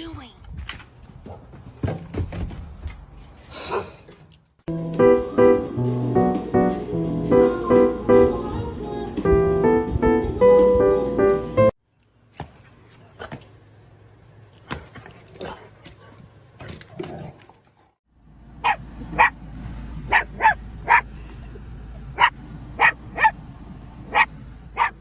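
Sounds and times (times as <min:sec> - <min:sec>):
dog barking: 0:18.6 - 0:19.4, 0:20.1 - 0:21.1, 0:22.2 - 0:23.4, 0:24.1 - 0:25.0.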